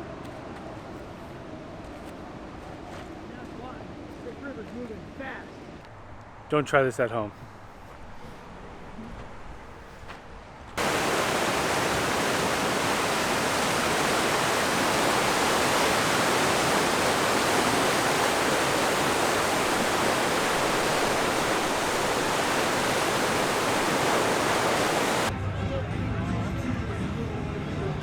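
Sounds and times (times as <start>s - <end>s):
river water rushing: 10.8s - 25.3s.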